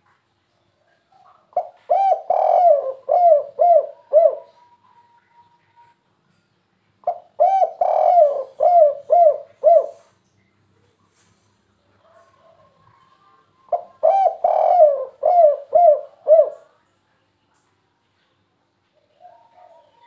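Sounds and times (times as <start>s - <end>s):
dove cooing: 0.8s - 5.5s, 7.0s - 10.1s, 12.1s - 16.8s, 19.2s - 20.0s.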